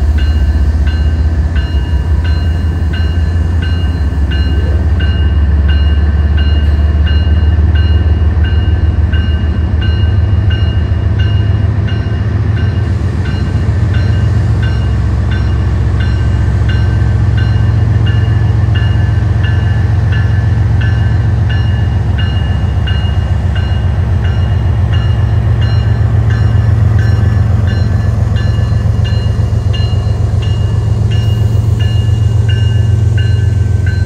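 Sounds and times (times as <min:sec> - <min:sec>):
diesel locomotive rumble: 0:00.0 - 0:34.0.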